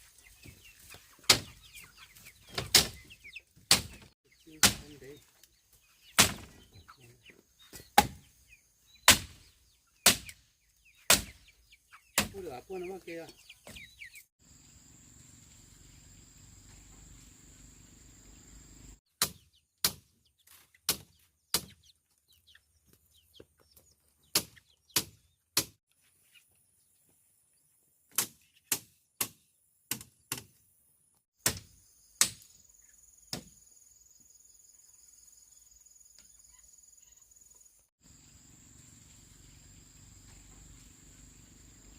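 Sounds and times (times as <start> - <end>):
blade chopping bamboo: 4.6 - 5.0, 6.2 - 6.5, 8.0 - 8.2, 9.1 - 9.4, 10.0 - 10.4, 11.1 - 11.3, 31.4 - 32.4.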